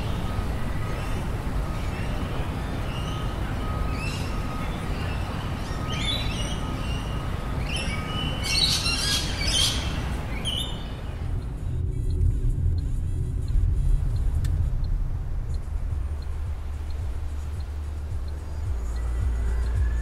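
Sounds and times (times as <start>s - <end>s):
birds chirping: 0.0s - 11.6s, 13.5s - 20.0s
low rumble: 10.0s - 20.0s.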